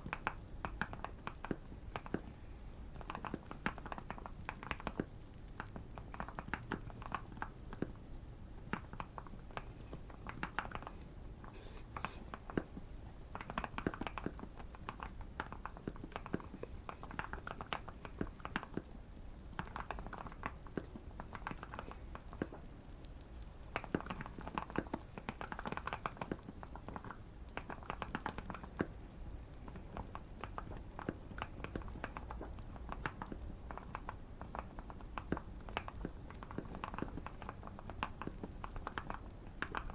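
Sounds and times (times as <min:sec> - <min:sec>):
faint fireplace crackling: 0:00.0 - 0:39.9.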